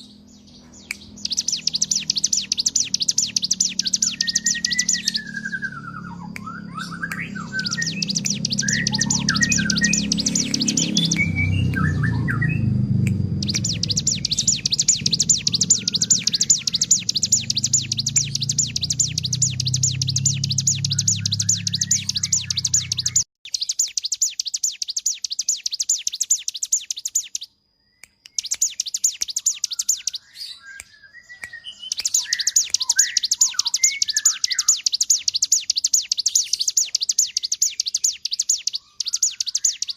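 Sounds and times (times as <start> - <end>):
low hum: 0.0 - 23.2
bird singing fast buzzing notes: 0.0 - 39.9
lower bird chirps: 0.0 - 39.9.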